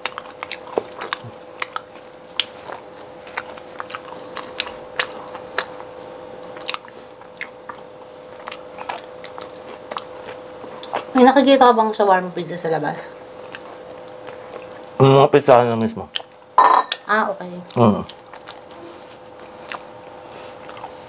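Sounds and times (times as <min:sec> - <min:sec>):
mouth clicks and wet smacks: 0:00.0 - 0:02.6, 0:16.1 - 0:16.4, 0:17.7 - 0:18.7
chewing and biting food: 0:00.0 - 0:11.2, 0:13.1 - 0:15.0, 0:16.1 - 0:16.6, 0:17.6 - 0:21.0.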